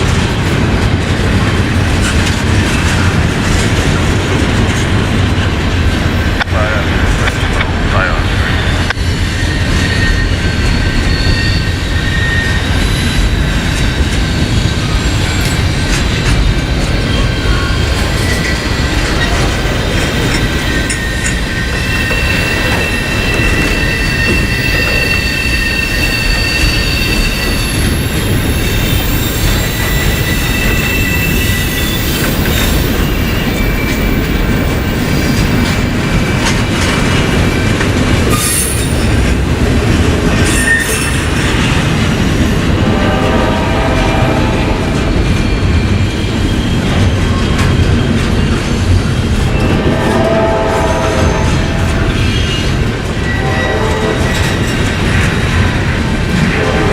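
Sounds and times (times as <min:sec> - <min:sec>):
freight train wheels rumbling: 0:00.0 - 0:56.9
high-pitched wheel squeals: 0:08.4 - 0:15.6, 0:20.4 - 0:34.3, 0:40.4 - 0:41.8.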